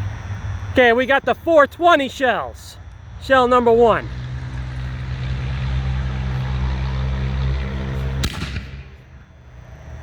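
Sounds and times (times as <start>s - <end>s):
engine idling hum: 0.0s - 10.0s
firework launch bang: 7.6s - 9.1s.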